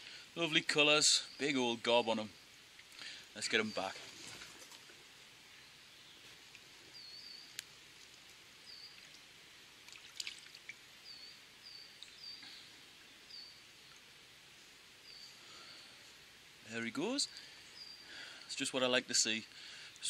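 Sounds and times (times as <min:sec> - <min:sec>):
small bird chirping: 0:05.5 - 0:07.7, 0:08.6 - 0:09.3, 0:11.0 - 0:14.1
small splashes in water: 0:08.9 - 0:10.8.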